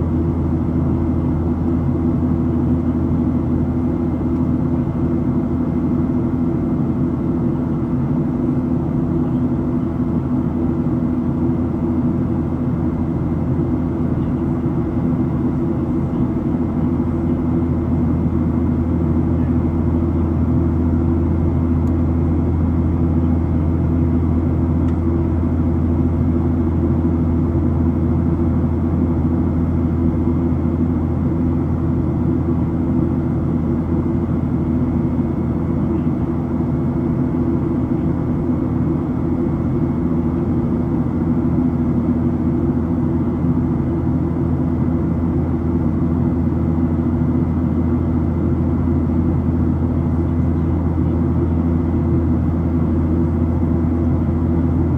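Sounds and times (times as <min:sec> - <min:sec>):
jet engine drone in cabin: 0:00.0 - 0:54.9.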